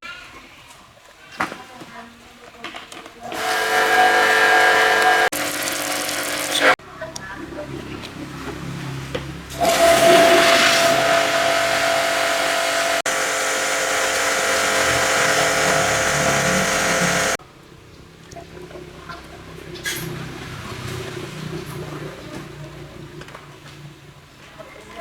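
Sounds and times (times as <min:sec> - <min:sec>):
motor hum: 0:03.3 - 0:06.8, 0:09.5 - 0:17.4
pressure washer jet hissing: 0:03.3 - 0:06.8, 0:09.6 - 0:17.4.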